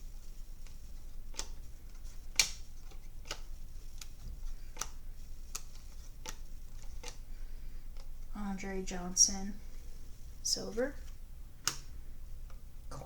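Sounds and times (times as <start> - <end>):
trading cards flipping clicks: 0.6 - 7.2, 11.6 - 11.9.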